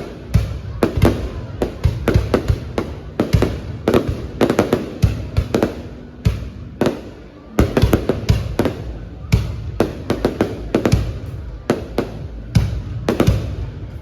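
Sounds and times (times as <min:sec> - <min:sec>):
fireworks exploding: 0:00.0 - 0:14.0.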